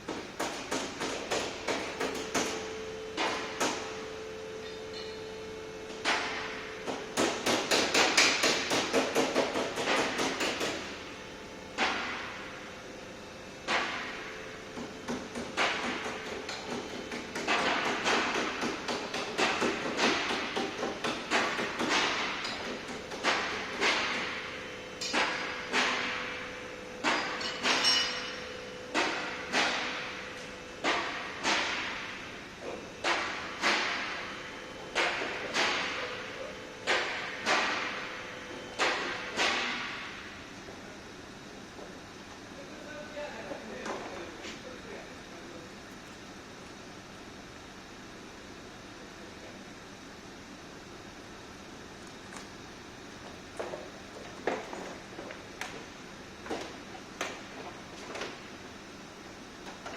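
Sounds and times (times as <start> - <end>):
hammer striking metal: 27.0 - 29.9.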